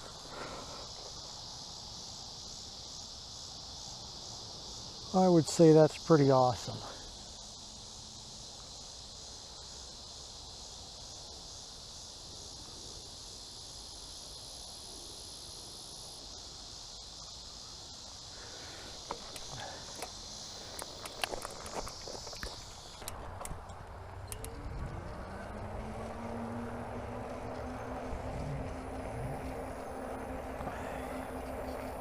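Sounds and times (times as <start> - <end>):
high-pitched insects: 0.0 - 32.0
insects trilling: 0.0 - 32.0
sharp clicks and crunches: 19.0 - 25.1.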